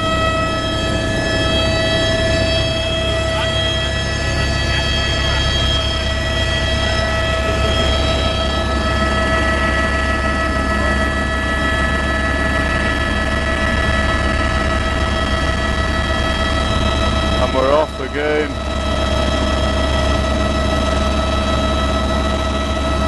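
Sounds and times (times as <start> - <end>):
helicopter engine drone: 0.0 - 23.0
high-pitched turbine whine: 0.0 - 23.0.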